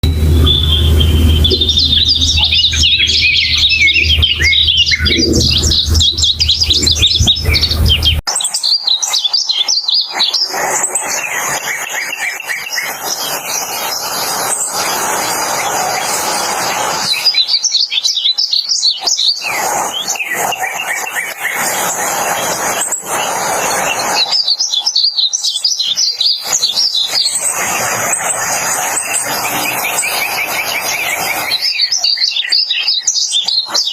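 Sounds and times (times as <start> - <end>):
low hum: 0.0 - 8.2
bird singing warbling song: 0.0 - 33.9.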